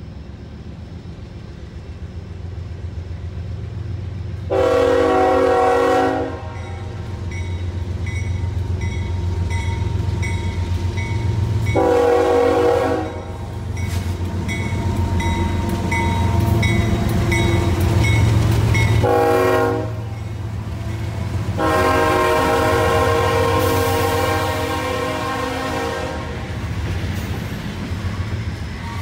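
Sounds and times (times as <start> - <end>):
diesel locomotive engines rumbling: 0.0 - 29.0
train air horn blasts: 4.5 - 7.0, 11.7 - 15.2, 18.9 - 26.6.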